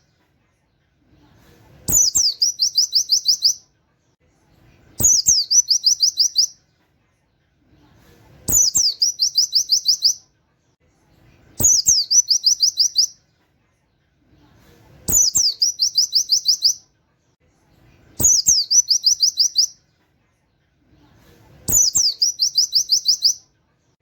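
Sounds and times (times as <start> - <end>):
bird singing rapid high notes: 1.9 - 3.6, 8.5 - 10.2, 11.6 - 13.2, 15.1 - 16.8, 18.2 - 19.8, 21.7 - 23.4.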